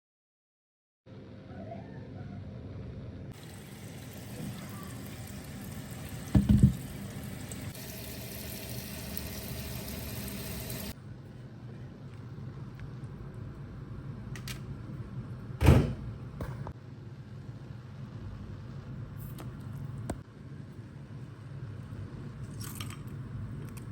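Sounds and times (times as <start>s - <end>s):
water running: 3.3s - 11.0s
loud knock: 6.4s - 6.8s.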